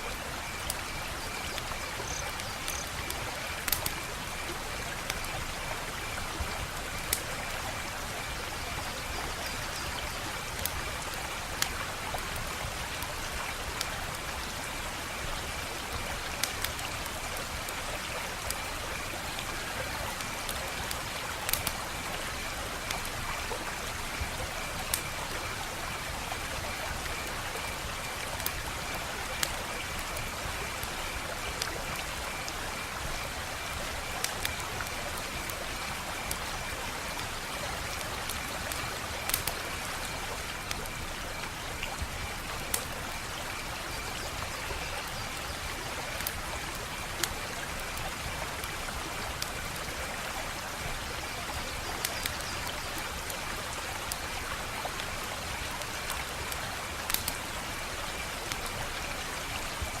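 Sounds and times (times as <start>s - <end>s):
wood fire crackling and popping: 0.6s - 5.3s, 15.8s - 22.1s, 33.9s - 43.0s, 46.1s - 50.0s, 55.8s - 57.4s.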